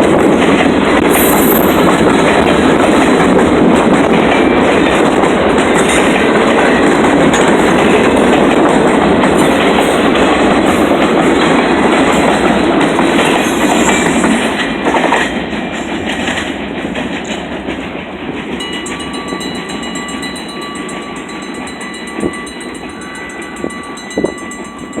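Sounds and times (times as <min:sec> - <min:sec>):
freight train wheels clicking: 0:00.0 - 0:25.0
crossing signal bell ringing: 0:18.6 - 0:25.0.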